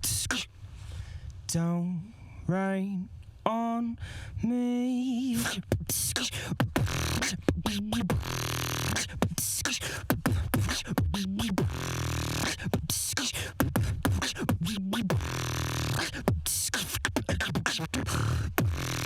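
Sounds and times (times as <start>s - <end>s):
low vocal bass: 0.0s - 0.5s, 1.5s - 19.0s
beatboxing kick and snare: 5.5s - 19.0s.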